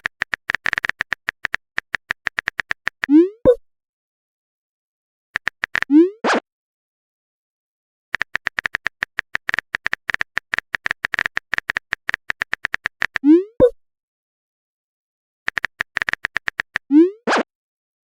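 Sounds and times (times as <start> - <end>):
typing clicks: 0.0 - 3.1, 5.4 - 5.9, 8.1 - 13.2, 15.5 - 16.9.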